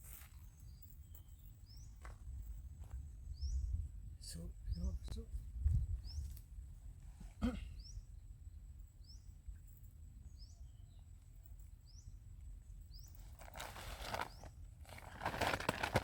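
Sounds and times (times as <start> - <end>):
rustling: 13.2 - 16.0.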